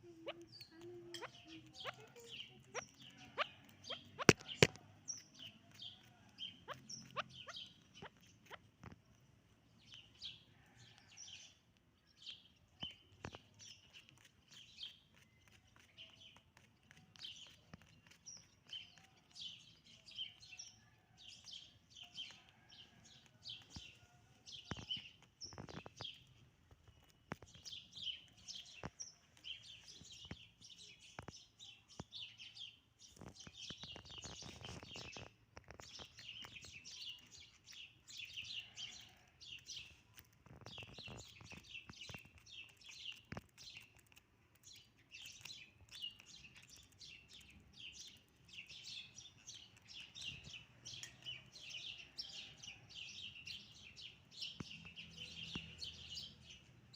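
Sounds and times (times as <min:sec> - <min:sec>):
partridges chirping: 0:00.2 - 0:09.0
sharp clicks: 0:03.7 - 0:05.5.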